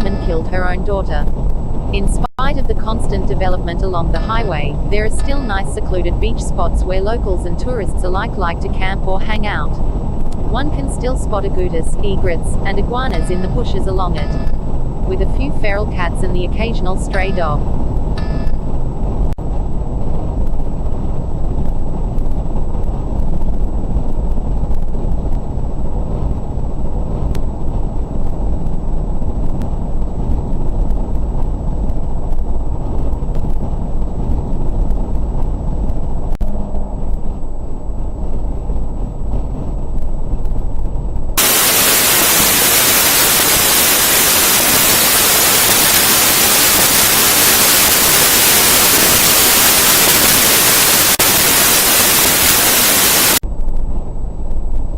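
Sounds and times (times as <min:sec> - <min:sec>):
loud static hiss: 0:00.0 - 0:18.8, 0:40.4 - 0:53.8.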